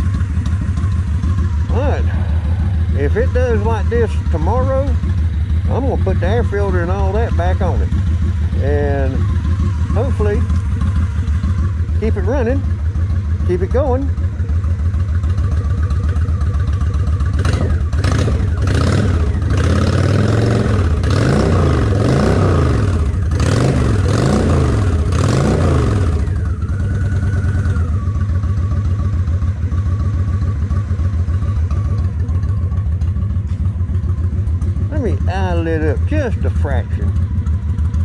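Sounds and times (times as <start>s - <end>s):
motorcycle engine revving and idling: 0.0s - 38.0s.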